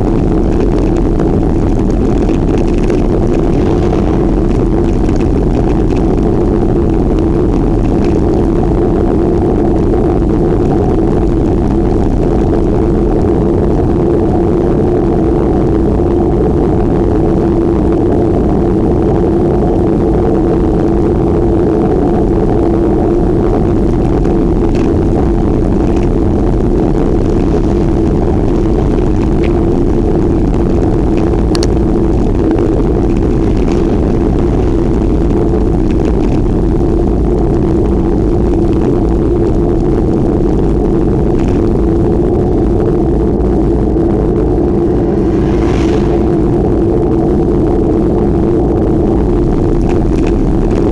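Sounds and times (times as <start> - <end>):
constant hum: 0.0 - 50.9
wind on microphone: 0.0 - 50.9
faint clicks: 31.1 - 31.8.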